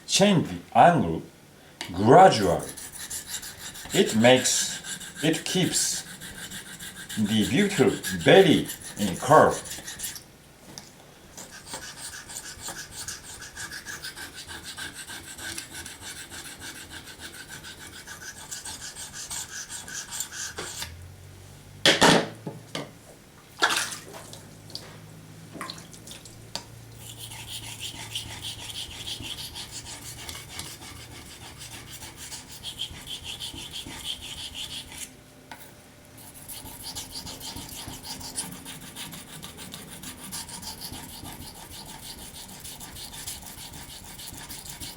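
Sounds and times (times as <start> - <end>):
knife scraping on whetstone: 2.3 - 10.2, 11.4 - 20.9, 27.0 - 44.9.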